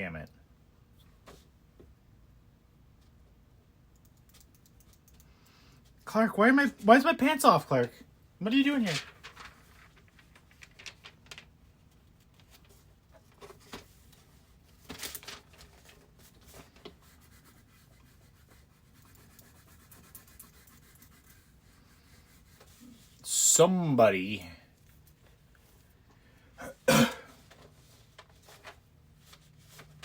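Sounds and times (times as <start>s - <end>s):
faint scratching and rubbing: 16.2s - 23.2s.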